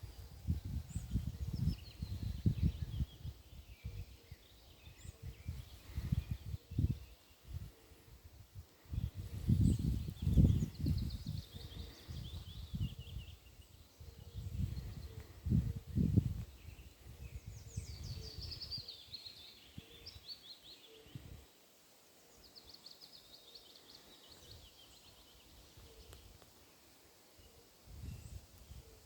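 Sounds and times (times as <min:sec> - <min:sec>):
songbird singing trills: 0:00.0 - 0:07.8, 0:08.8 - 0:21.5.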